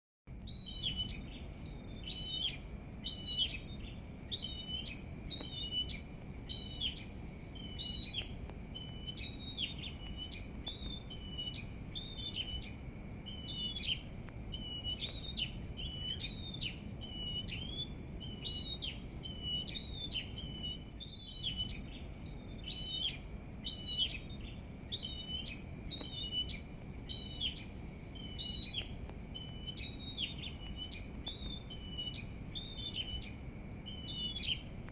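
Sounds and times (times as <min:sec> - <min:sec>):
low background rumble: 0:00.3 - 0:34.9
small birds chirping: 0:00.3 - 0:34.9.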